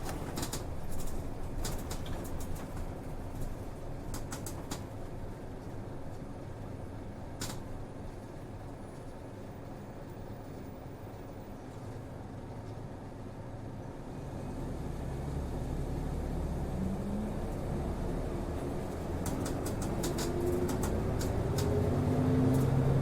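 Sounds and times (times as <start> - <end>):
bus diesel engine: 0.0 - 23.0
road rumble: 0.0 - 23.0.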